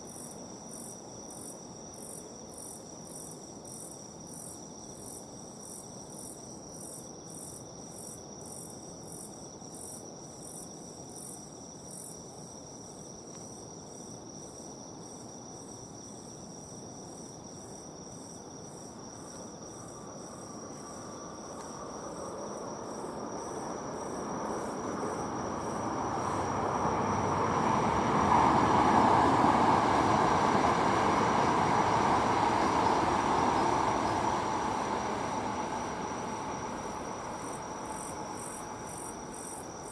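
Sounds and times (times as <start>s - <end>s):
insects chirping: 0.0s - 39.9s
train rumble passing: 19.8s - 39.9s.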